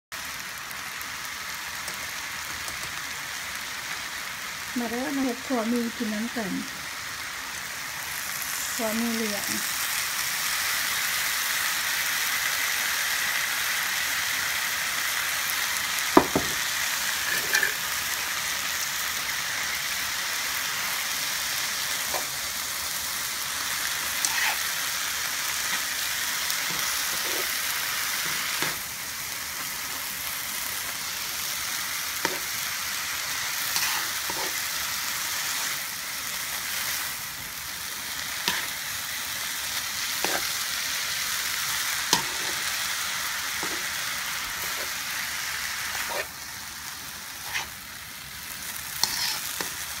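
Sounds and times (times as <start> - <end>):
noodles sizzling in a pan: 0.1 - 50.0
utensil knocking against pan: 16.2 - 16.6.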